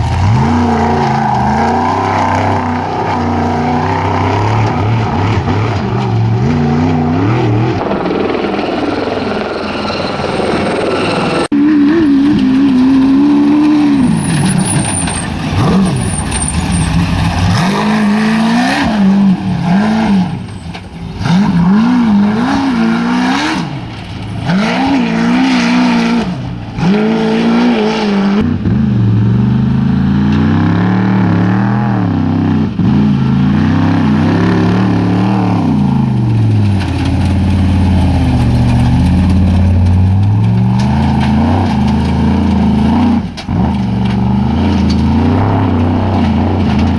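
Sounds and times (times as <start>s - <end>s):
racing engine revving: 0.0s - 46.9s
deep engine with wavering pitch: 24.4s - 46.9s.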